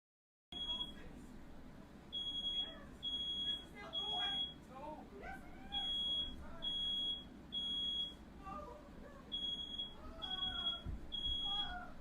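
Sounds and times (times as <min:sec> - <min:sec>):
smoke alarm beeping: 0:00.6 - 0:01.0, 0:02.1 - 0:04.6, 0:05.8 - 0:08.2, 0:09.3 - 0:11.8
faint voices: 0:08.3 - 0:12.0.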